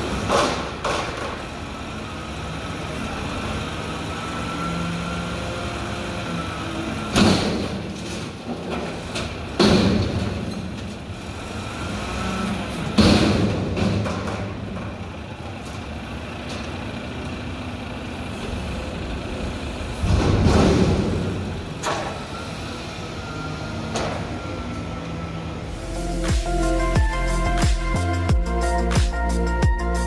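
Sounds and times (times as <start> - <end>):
garbage truck running: 0.0 - 30.0
loud ringing bangs: 19.9 - 22.3.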